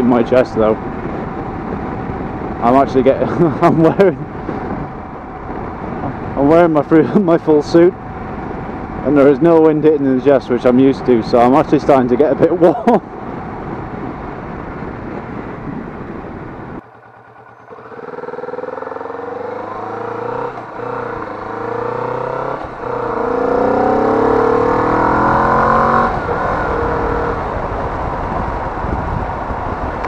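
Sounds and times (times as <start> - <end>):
wind noise on microphone: 0.0 - 16.8, 20.4 - 30.0
motorcycle engine accelerating: 16.6 - 30.0.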